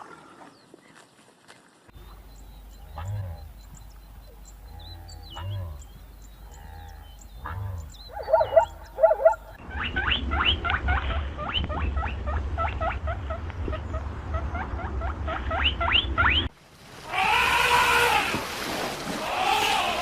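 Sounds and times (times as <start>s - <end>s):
different animal call: 4.6s - 11.6s, 17.0s - 18.4s, 19.2s - 20.0s.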